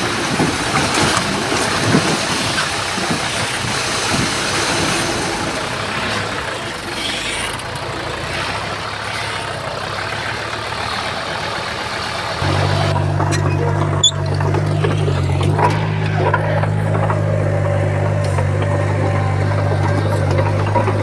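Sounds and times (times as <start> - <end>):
heavy machinery diesel engine running: 0.0 - 21.0
dense noisy rush: 12.4 - 21.0.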